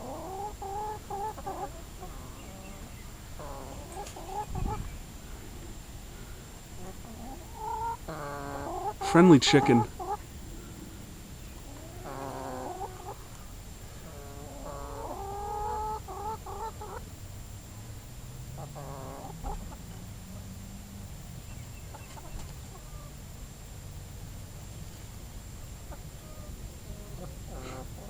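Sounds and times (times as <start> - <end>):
chicken calling: 0.0 - 5.0, 6.7 - 10.2, 11.6 - 13.4, 14.0 - 17.0, 18.6 - 20.0, 25.9 - 28.0
air conditioner hum: 0.0 - 28.0.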